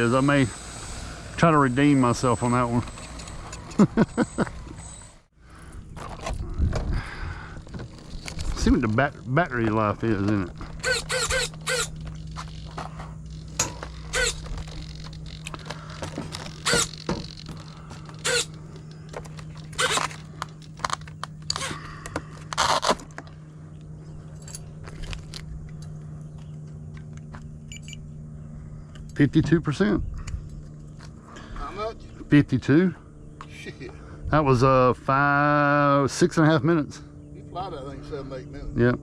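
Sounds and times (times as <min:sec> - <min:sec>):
steady low hum: 0:00.0 - 0:39.0
handling clicks and rustles: 0:05.9 - 0:27.9.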